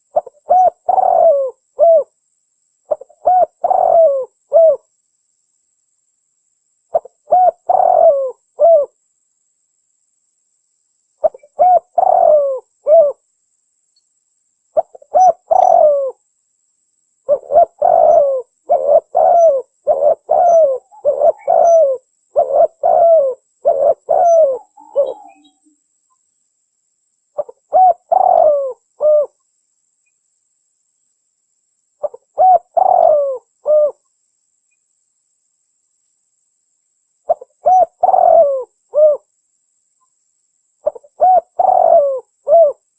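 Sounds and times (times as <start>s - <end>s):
dove cooing: 0.0s - 2.1s, 2.9s - 4.8s, 6.9s - 9.0s, 11.2s - 13.2s, 14.8s - 16.2s, 17.3s - 25.6s, 27.4s - 29.4s, 32.0s - 34.0s, 37.3s - 39.3s, 40.8s - 42.8s.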